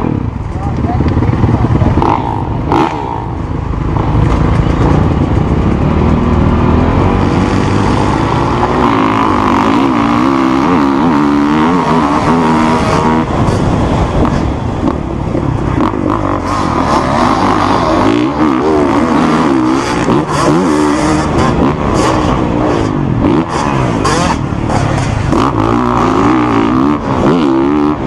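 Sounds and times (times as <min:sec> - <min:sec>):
motorcycle engine revving: 0:00.0 - 0:28.0
rushing noise: 0:01.2 - 0:28.0.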